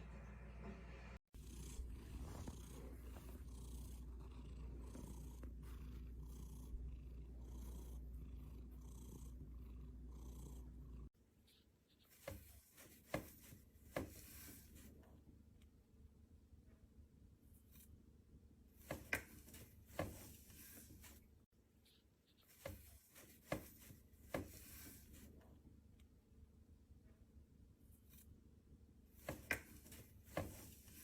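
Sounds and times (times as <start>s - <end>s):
cat purring: 1.4s - 11.1s.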